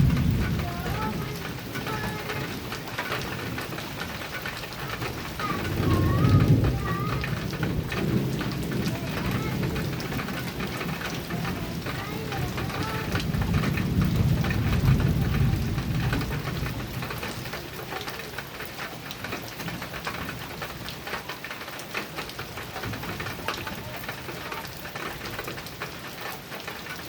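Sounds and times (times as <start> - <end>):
low thunder rumble: 0.0 - 21.4
heavy rain on a metal roof: 0.0 - 27.0.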